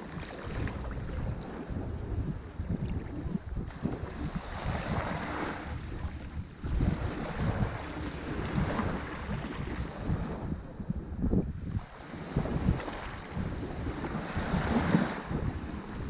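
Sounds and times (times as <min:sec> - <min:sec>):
ocean waves breaking: 0:00.0 - 0:16.0
wind rumble on microphone: 0:00.0 - 0:16.0.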